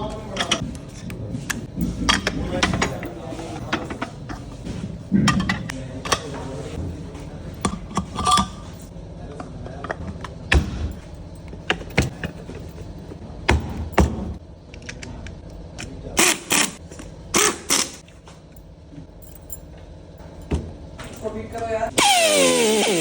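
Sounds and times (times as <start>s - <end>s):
low machine hum: 0.0s - 22.1s
metal parts clinking and knocking: 0.3s - 6.3s, 7.5s - 8.9s, 18.6s - 21.7s.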